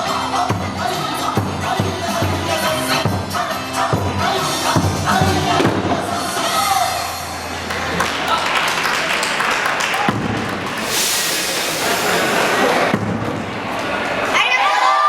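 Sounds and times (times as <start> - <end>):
crowd voices: 0.0 - 15.0
crowd clapping: 7.6 - 12.9
taiko drum thumps: 10.1 - 10.6.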